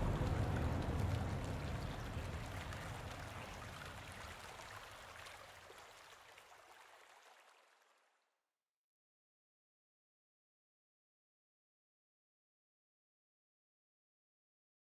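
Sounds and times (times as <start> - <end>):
running water with low rumble: 0.0 - 8.2.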